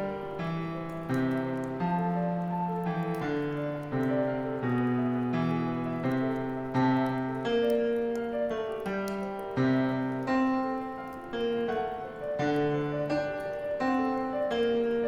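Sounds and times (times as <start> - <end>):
bonfire crackling: 0.0 - 15.0
gentle piano playing: 0.0 - 15.0.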